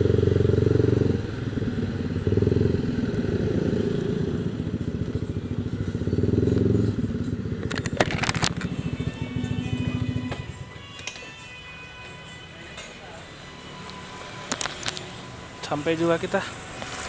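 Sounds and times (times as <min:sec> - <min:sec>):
scooter engine revving: 0:00.0 - 0:10.8.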